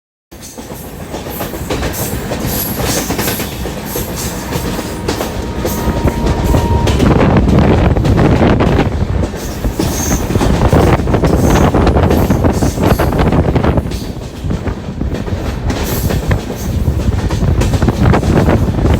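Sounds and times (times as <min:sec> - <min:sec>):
train wheels clattering: 0:00.3 - 0:18.9
high wheel squeals: 0:02.5 - 0:08.0, 0:09.5 - 0:13.2.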